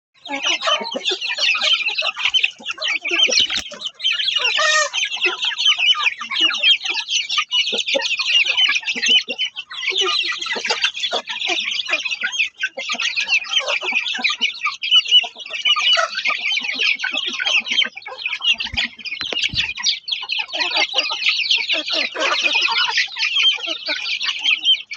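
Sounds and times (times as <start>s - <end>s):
chicks peeping: 0.2s - 24.9s.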